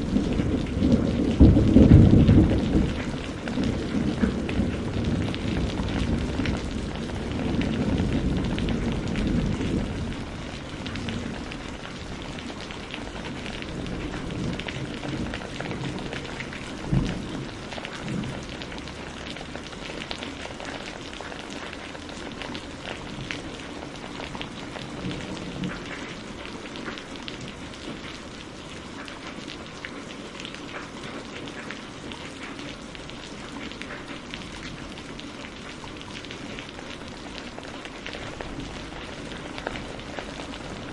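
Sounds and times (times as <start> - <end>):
low thunder rumble: 0.0 - 19.7
steady rain falling: 0.0 - 40.9.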